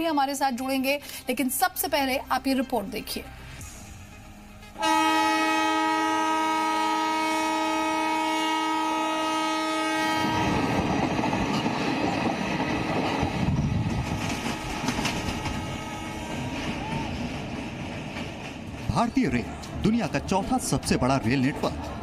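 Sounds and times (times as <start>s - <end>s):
train horn chord: 3.7s - 11.0s, 13.6s - 16.8s
train coaches rumbling and clattering: 7.4s - 22.0s.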